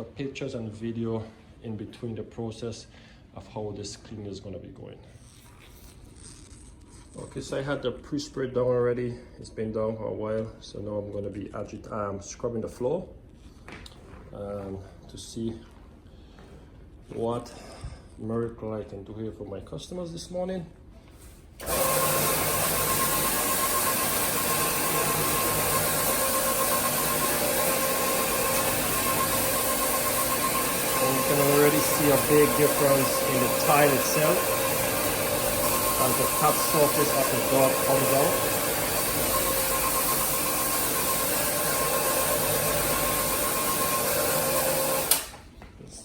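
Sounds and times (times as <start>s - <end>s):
floor-scrubbing machine running: 21.6s - 45.4s.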